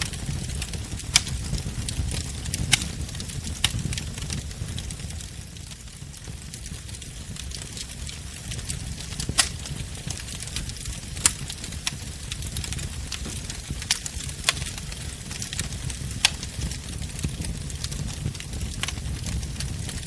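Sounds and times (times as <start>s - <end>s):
burning wood crackling: 0.0s - 20.0s
rumble of flames: 0.0s - 20.0s.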